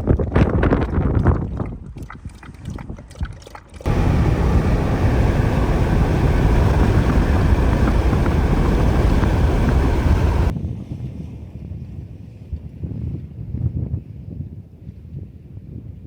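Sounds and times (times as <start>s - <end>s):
vehicle driving on road: 3.9s - 10.5s.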